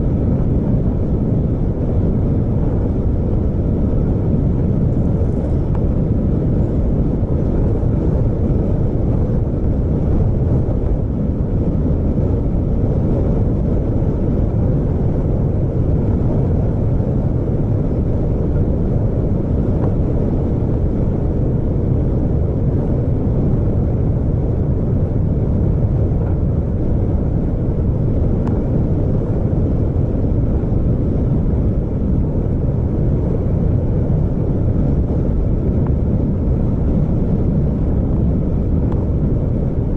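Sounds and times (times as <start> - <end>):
vehicle engine rumble: 0.0 - 39.9.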